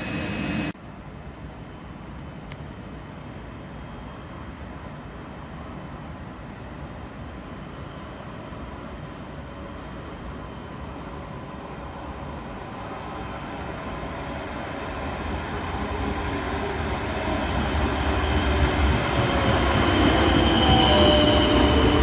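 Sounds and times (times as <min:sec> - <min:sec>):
train running noise echoing: 0:00.0 - 0:00.8, 0:06.8 - 0:22.0.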